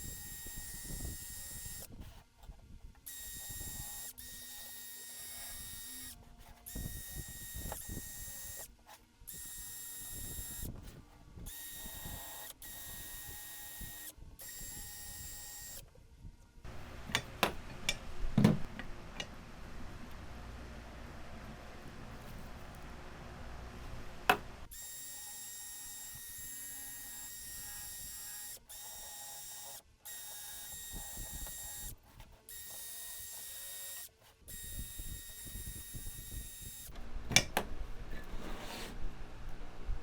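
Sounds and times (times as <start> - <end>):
power tool motor humming with whine: 0.0 - 2.0, 3.1 - 8.7, 9.3 - 10.8, 11.5 - 15.8, 24.7 - 37.0.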